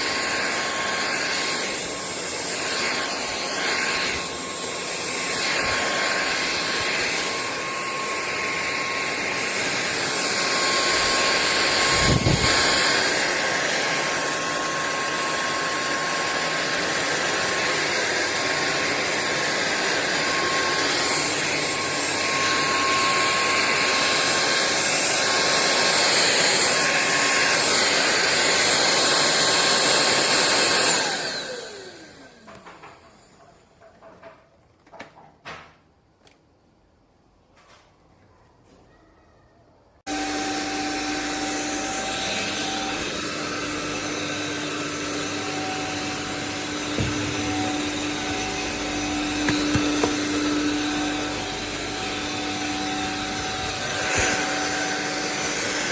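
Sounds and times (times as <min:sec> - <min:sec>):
stick vacuum whining: 0:00.0 - 0:33.9, 0:40.1 - 0:55.9.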